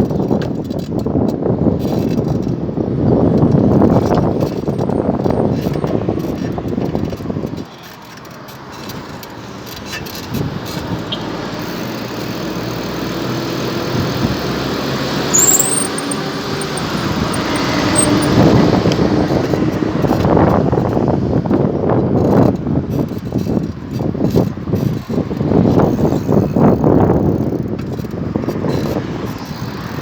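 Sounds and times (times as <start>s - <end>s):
passing cars rushing: 9.3s - 20.2s.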